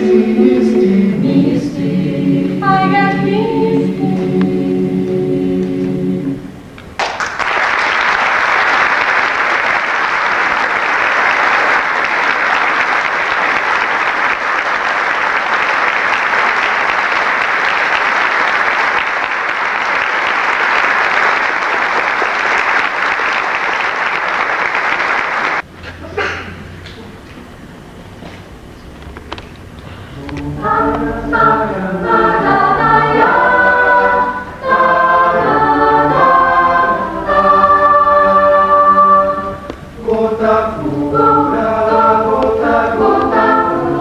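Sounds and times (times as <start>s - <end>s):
choir holding chord: 0.0s - 6.7s, 30.1s - 44.0s
audience applauding: 7.0s - 25.7s.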